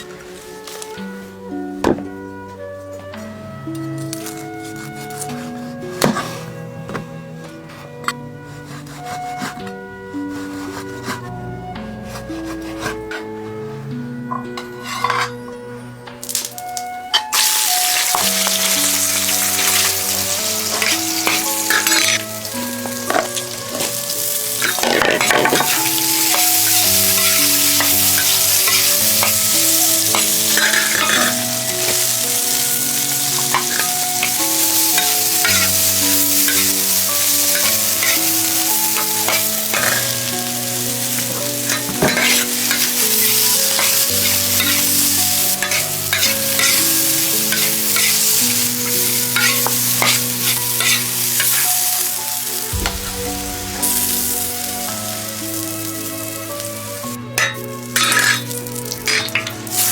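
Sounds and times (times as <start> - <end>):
slow melodic music: 0.0 - 59.9
food sizzling in a pan: 16.2 - 59.9.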